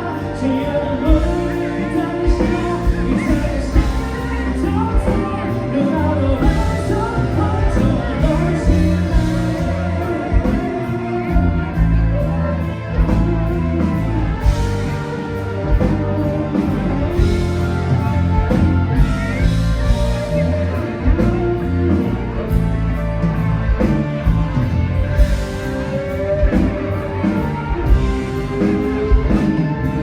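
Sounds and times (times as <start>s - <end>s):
electric guitar: 0.0s - 30.0s
person singing: 0.0s - 30.0s.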